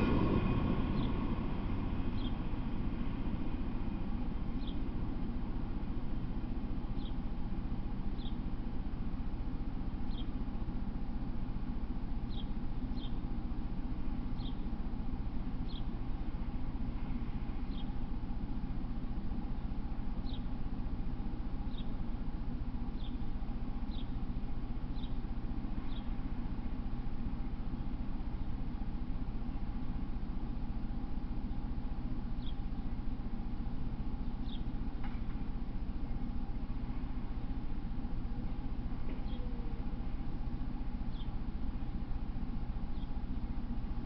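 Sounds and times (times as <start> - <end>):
low steady hum: 0.0 - 44.0
small bird chirping: 4.6 - 4.8, 6.9 - 7.2, 8.2 - 8.5, 10.1 - 10.4, 12.3 - 13.2, 14.4 - 14.7, 15.6 - 16.0, 20.2 - 20.5, 21.7 - 22.0, 23.0 - 23.3, 23.9 - 24.2, 24.9 - 25.2, 25.8 - 26.2, 32.4 - 32.8, 34.2 - 34.8, 39.0 - 40.0, 41.1 - 41.5, 42.8 - 43.3.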